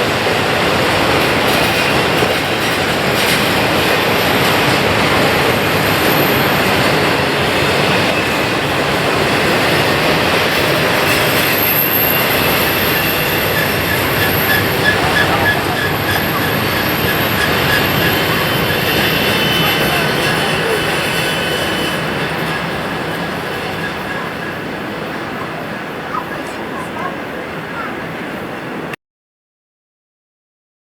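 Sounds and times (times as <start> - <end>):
steel wheels rumbling on rail: 0.0 - 29.0
wheel squeal: 9.6 - 26.4.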